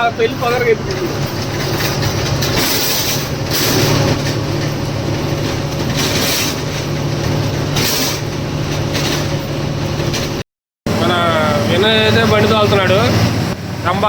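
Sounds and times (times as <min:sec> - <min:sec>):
lorry engine with road noise: 0:00.0 - 0:14.0.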